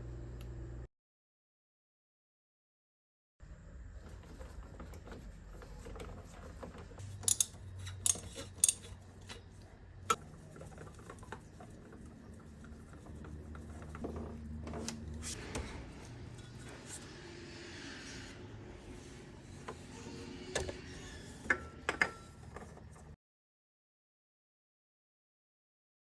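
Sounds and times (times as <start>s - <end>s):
metal tools clinking: 7.1s - 9.5s.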